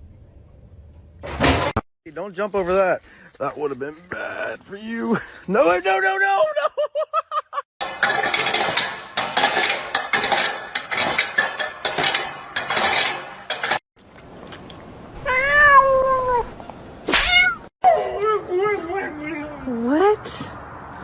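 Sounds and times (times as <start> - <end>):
hard objects clattering: 7.8 - 13.8
cat meowing: 15.2 - 16.5, 17.1 - 17.7.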